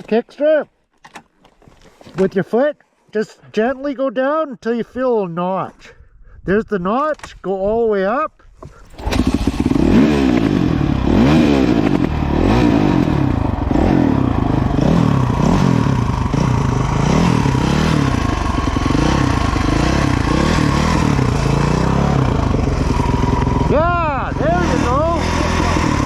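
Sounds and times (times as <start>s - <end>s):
dirt bike engine revving: 8.9s - 26.0s.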